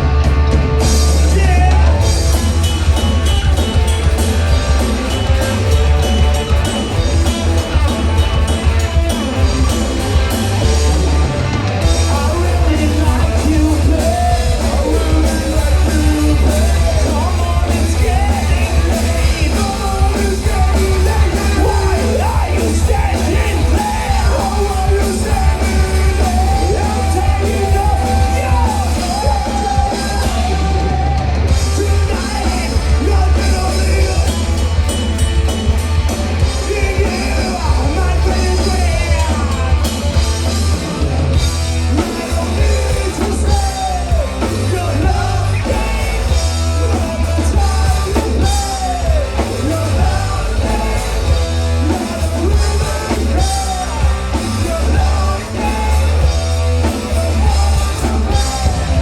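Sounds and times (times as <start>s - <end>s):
live rock band playing: 0.0s - 59.0s
singer shouting vocals: 1.1s - 2.2s, 12.0s - 34.7s, 36.5s - 39.8s, 41.9s - 59.0s.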